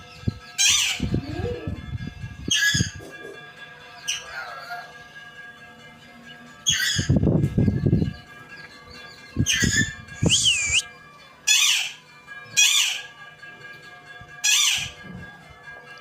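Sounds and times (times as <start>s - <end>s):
parrot squawking: 9.5s - 10.8s, 11.5s - 12.0s.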